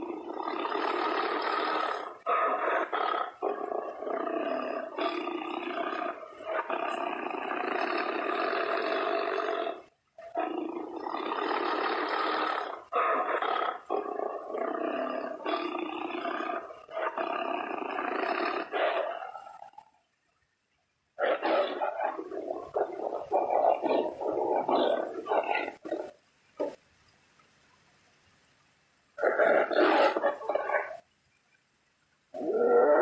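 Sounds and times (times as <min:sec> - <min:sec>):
tiger roaring and growling: 0:00.0 - 0:19.9, 0:21.2 - 0:26.8, 0:29.2 - 0:31.0, 0:32.3 - 0:33.0.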